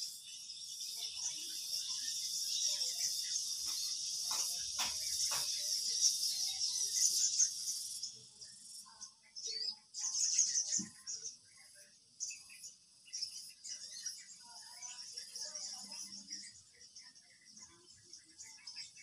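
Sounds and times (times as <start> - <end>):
insects chirring: 0.0 - 8.9.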